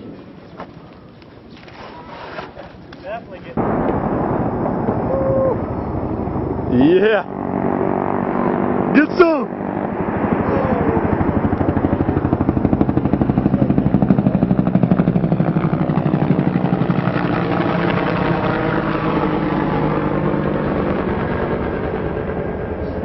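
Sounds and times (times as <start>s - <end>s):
engine pulsing passing by: 3.6s - 23.0s.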